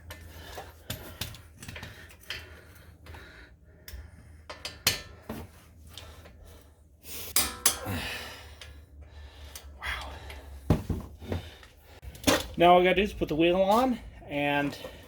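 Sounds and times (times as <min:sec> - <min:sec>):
heavy breath: 0:00.1 - 0:12.1
metallic clicks of tools and parts: 0:03.8 - 0:05.2, 0:07.3 - 0:08.0.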